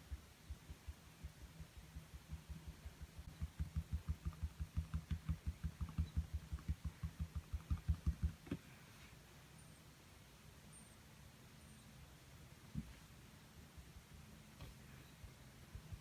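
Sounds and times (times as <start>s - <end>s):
tapping on canvas: 2.0s - 8.6s.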